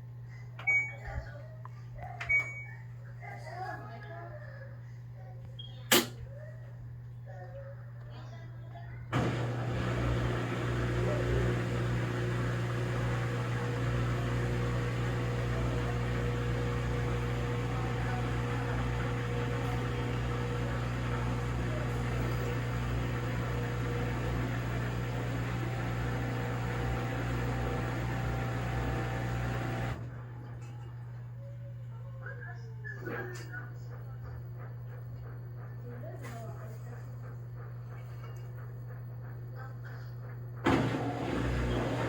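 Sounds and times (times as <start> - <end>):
electric machine hum: 9.1 - 31.8, 40.3 - 42.0.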